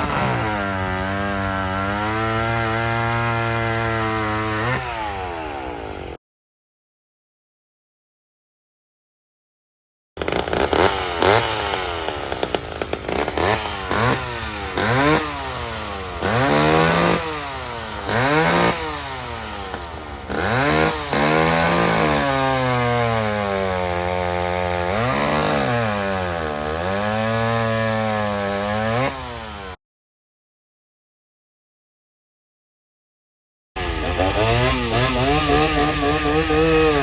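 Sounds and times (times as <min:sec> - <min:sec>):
chainsaw engine revving: 0:00.0 - 0:06.2, 0:10.2 - 0:29.8, 0:33.8 - 0:37.0.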